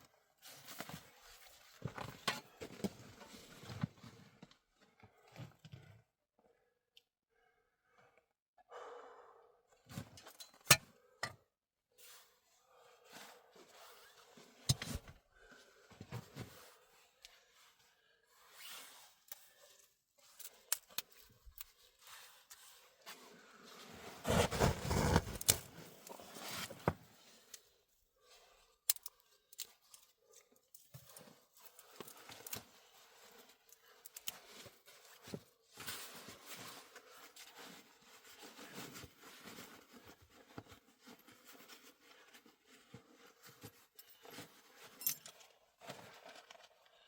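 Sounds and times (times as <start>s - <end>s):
scrapes: 23.8s - 26.8s
handling rustles: 24.2s - 26.9s.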